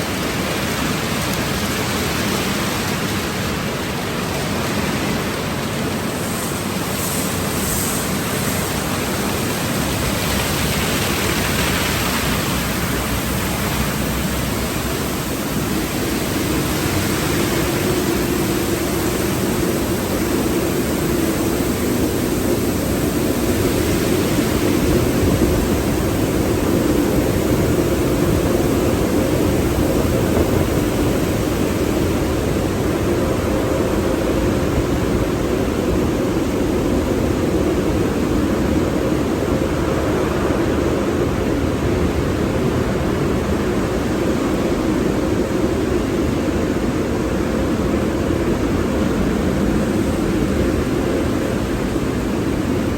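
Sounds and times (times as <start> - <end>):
water spray rushing: 0.0 - 33.0
car wash machinery noise: 0.0 - 52.9.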